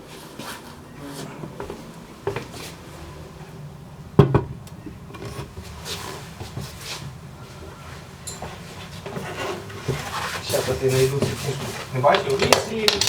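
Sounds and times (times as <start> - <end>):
soft rustles: 5.2 - 12.8.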